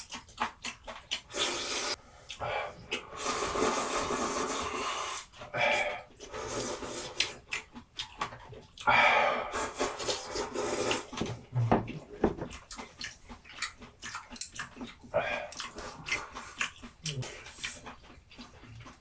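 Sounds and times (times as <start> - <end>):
noodles being slurped: 0.0 - 7.8, 8.8 - 11.2
mouth and chewing noises: 0.0 - 19.0.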